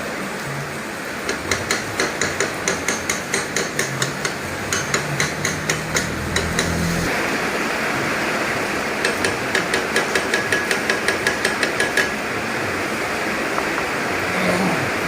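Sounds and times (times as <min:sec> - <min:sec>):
hammer tapping metal: 0:01.3 - 0:07.1, 0:09.0 - 0:12.2.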